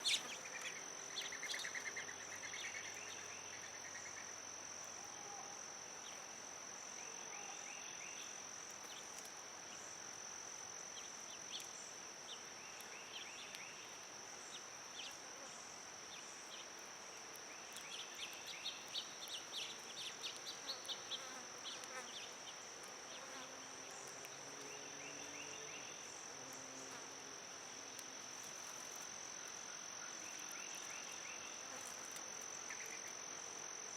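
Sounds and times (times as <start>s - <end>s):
high-pitched insect drone: 0.0s - 9.0s, 24.7s - 33.9s.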